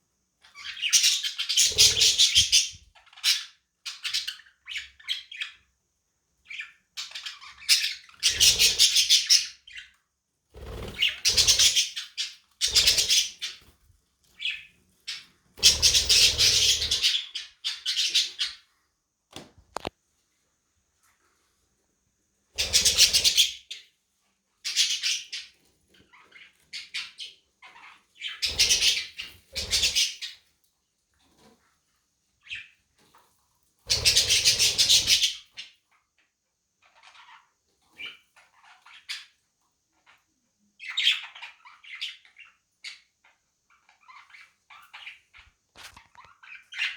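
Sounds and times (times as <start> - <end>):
budgerigars squawking: 14.4 - 18.6.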